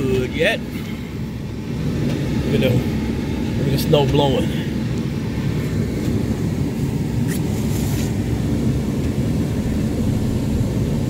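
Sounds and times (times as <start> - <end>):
road noise: 0.0 - 11.0
truck engine rumble: 0.0 - 11.0.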